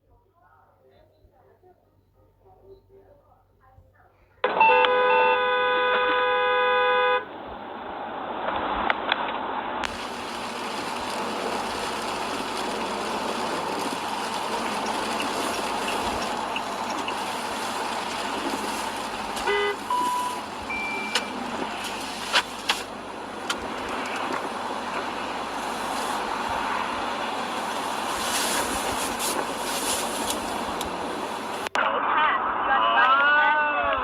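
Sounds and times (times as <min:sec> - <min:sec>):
road traffic noise: 0:04.4 - 0:31.7
car horn toot: 0:04.5 - 0:07.3, 0:13.9 - 0:23.0
chime-like tones: 0:19.9 - 0:21.4.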